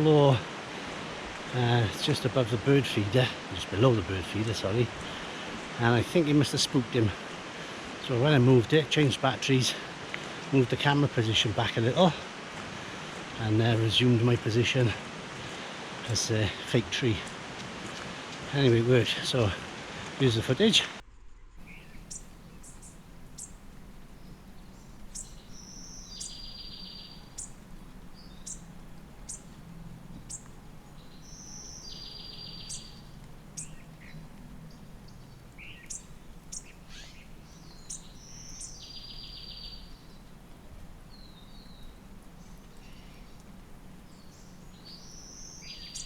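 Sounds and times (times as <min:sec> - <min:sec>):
high thin bird call notes: 0:21.6 - 0:34.2, 0:35.6 - 0:39.9
faint low hum: 0:21.6 - 0:38.3
songbird trilled song: 0:21.6 - 0:40.4, 0:41.1 - 0:46.0.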